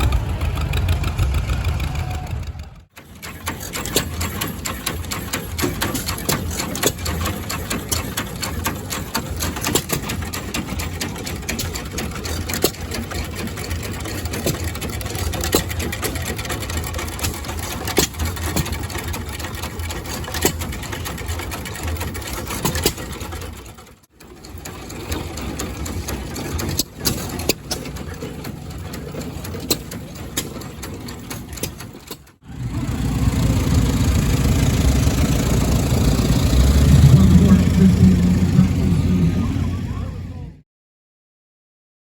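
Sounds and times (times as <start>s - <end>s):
low engine hum: 0.0s - 2.9s, 32.5s - 40.6s
engine clattering: 0.0s - 40.6s.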